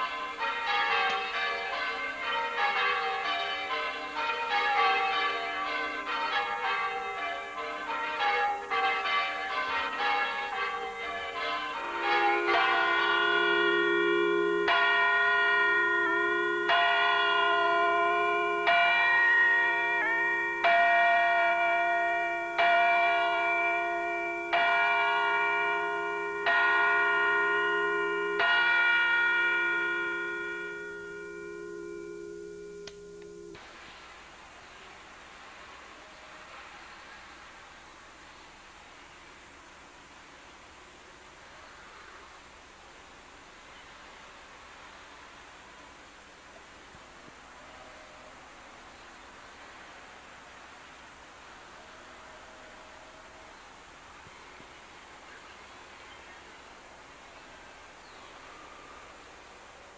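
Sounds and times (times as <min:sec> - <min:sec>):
church bells ringing: 0:00.0 - 0:33.6.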